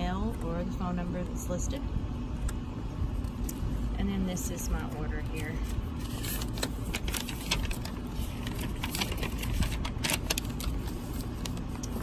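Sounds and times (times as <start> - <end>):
air conditioning rumble: 0.0 - 12.0
paper and packaging crackling: 4.8 - 12.0.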